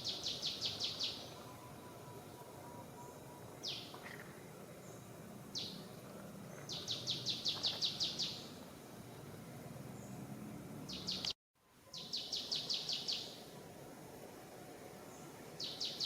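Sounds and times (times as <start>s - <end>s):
bird calling: 0.0s - 8.5s, 11.9s - 13.4s, 15.6s - 16.0s
outdoor background noise: 0.0s - 16.0s.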